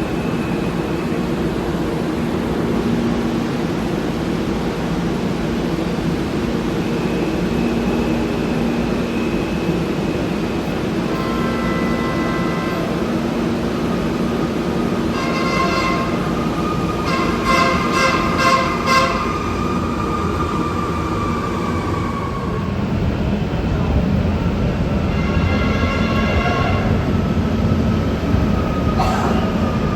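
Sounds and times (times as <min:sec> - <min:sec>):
light rail train rumbling: 0:00.0 - 0:29.9
train horn chord: 0:11.1 - 0:12.9, 0:15.1 - 0:16.2, 0:17.0 - 0:19.2, 0:25.1 - 0:27.1.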